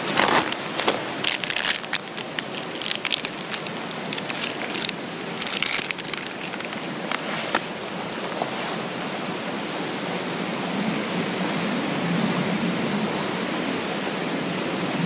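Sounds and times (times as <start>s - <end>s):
campfire crackling and snapping: 0.2s - 7.7s.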